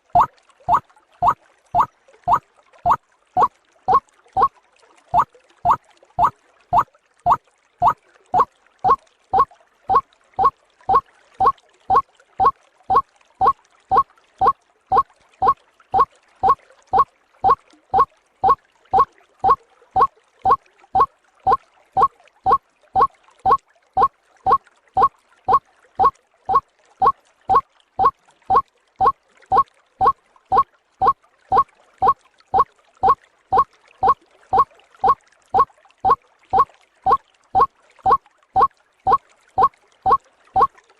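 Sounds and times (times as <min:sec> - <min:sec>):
waterhen calls: 0:00.0 - 0:02.4.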